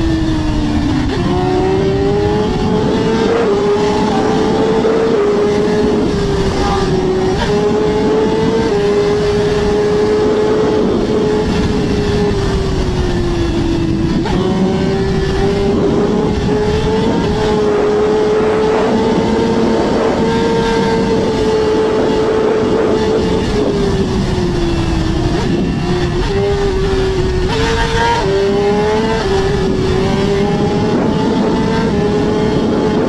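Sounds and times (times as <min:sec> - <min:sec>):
motorcycle engine at high speed: 0:00.0 - 0:33.0.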